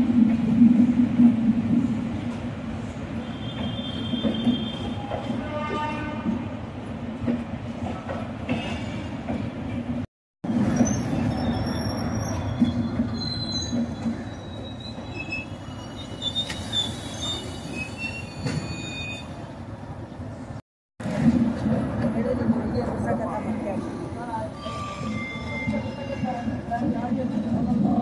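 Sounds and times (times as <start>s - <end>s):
rumble of wheels on rail: 0.0s - 28.0s
high-pitched wheel squeals: 10.8s - 19.4s, 24.6s - 26.5s.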